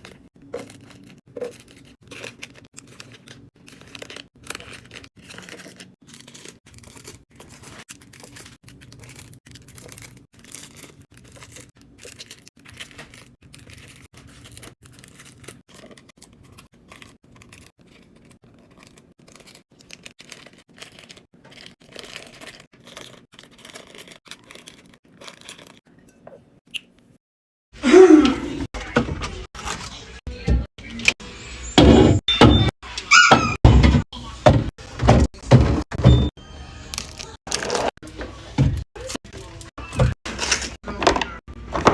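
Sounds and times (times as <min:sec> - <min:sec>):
food packaging crinkling and tearing: 0:00.0 - 0:25.9, 0:36.9 - 0:38.2.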